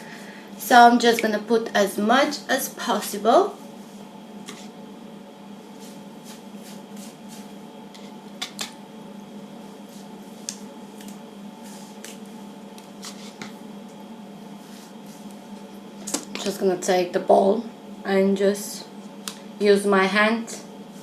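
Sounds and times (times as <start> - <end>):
steady low hum: 0.0 - 21.0
soft rustles of hair handling: 9.8 - 12.3.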